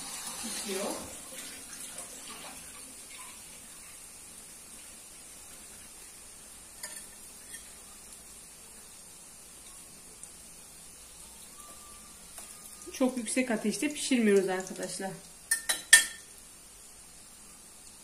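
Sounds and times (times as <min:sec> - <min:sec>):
pastries frying in hot oil: 0:00.0 - 0:18.0
fork clinking on ceramic plate: 0:15.5 - 0:16.3.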